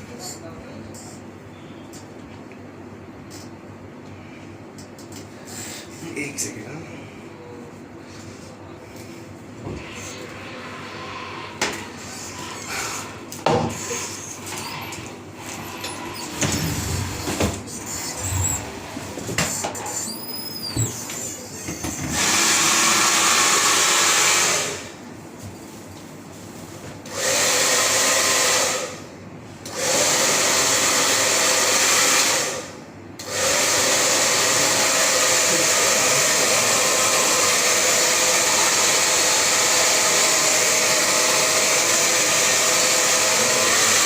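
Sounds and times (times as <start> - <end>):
hair dryer blowing: 21.9 - 25.0, 27.1 - 29.1, 29.7 - 44.0.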